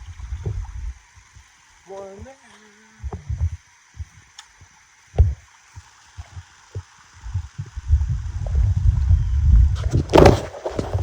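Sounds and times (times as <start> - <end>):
low handling rumble: 0.0 - 2.4, 7.2 - 11.0
river water flowing: 0.0 - 9.0
phone handling thumps: 3.0 - 4.3, 5.2 - 5.4.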